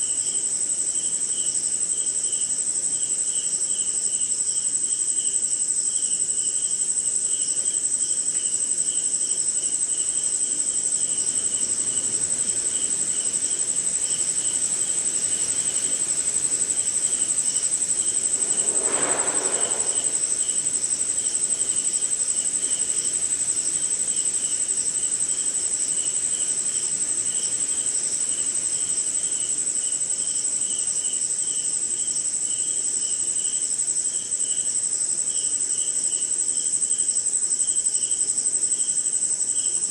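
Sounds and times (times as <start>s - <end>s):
crickets trilling: 8.4s - 31.6s
insects chirping in pulses: 10.7s - 24.9s
brief low sound: 18.0s - 20.8s.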